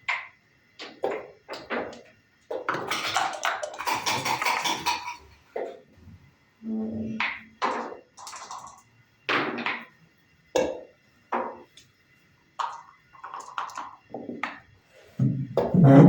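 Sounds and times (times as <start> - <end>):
checkers and dice clacking on board: 7.2 - 9.9, 12.6 - 14.6.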